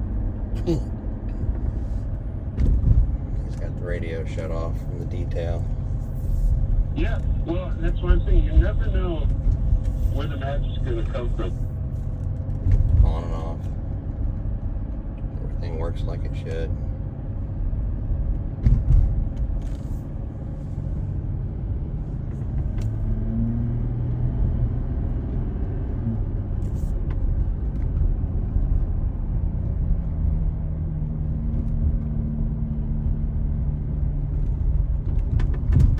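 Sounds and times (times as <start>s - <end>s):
car engine and road rumble: 0.0s - 35.9s
thump: 2.6s - 3.2s, 18.6s - 19.3s.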